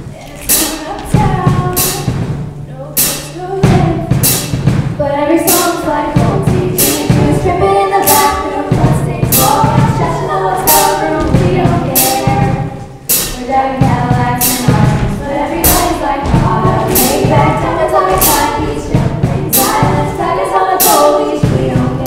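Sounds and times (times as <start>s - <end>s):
steady percussive beat: 0.0s - 22.0s
upbeat accompaniment with bass: 0.0s - 22.0s
choir singing: 5.5s - 12.7s, 13.4s - 22.0s.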